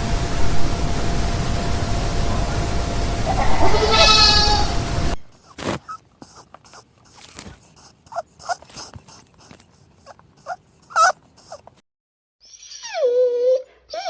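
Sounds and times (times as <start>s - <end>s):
animal squeaking: 5.4s - 11.8s
faint clicks and rustling: 5.4s - 11.8s.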